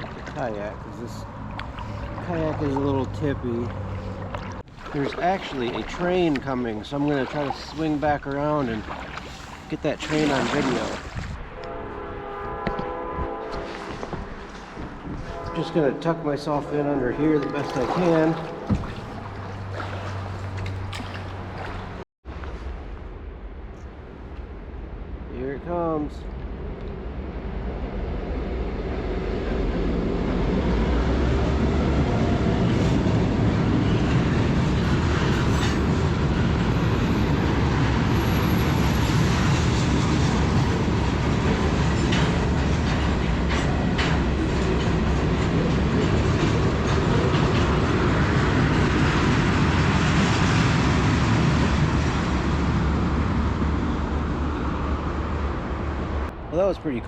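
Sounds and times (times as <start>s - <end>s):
train rumbling over bridge: 0.0s - 22.0s, 26.0s - 56.5s
wheels clicking over rail joints: 38.8s - 51.5s.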